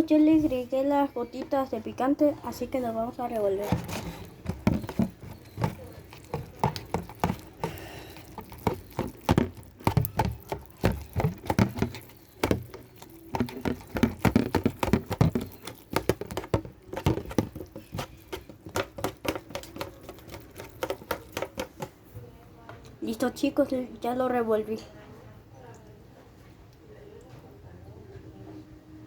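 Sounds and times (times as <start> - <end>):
spoon stirring noodles: 2.5 - 22.1.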